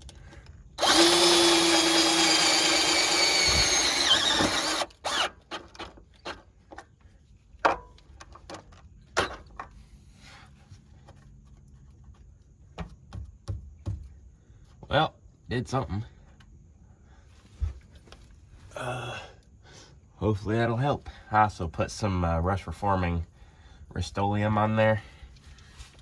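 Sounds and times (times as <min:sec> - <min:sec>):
power drill running under load: 0:00.8 - 0:05.7.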